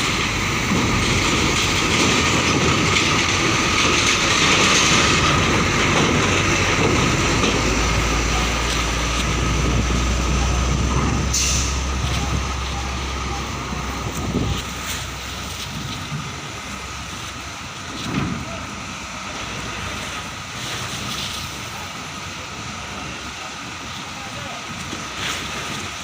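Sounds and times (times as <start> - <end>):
truck diesel engine rumbling: 0.0 - 26.0
short hiss: 11.3 - 11.9.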